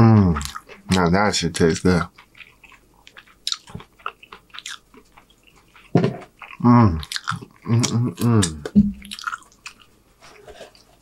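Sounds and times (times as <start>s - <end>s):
wordless voiced sounds: 0.0s - 2.7s, 6.0s - 9.3s
chewing mouth sounds: 0.0s - 9.9s.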